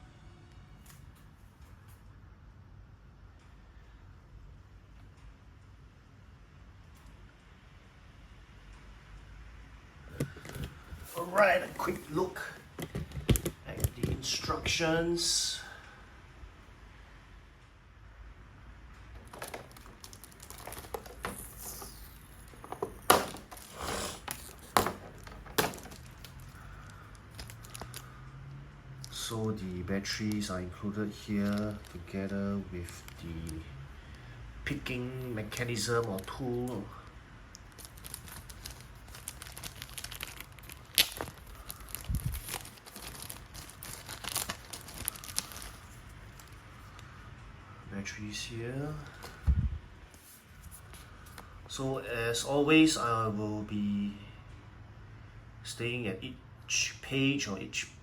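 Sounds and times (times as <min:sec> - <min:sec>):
packaging rustling and crinkling: 0:10.1 - 0:14.5, 0:19.1 - 0:28.2, 0:30.0 - 0:33.6, 0:34.8 - 0:37.0, 0:37.6 - 0:47.1, 0:49.0 - 0:49.5.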